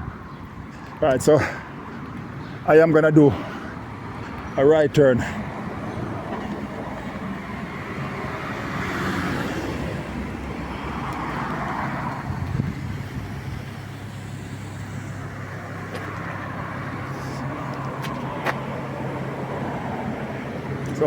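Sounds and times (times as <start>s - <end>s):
cars passing: 0.0s - 21.0s
low engine hum: 5.2s - 21.0s.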